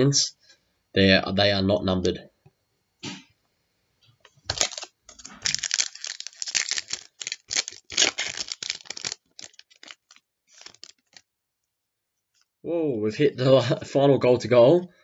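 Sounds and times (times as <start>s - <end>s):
cards rustling and clicking: 4.3s - 11.2s
card pack wrapper tearing: 4.4s - 11.3s.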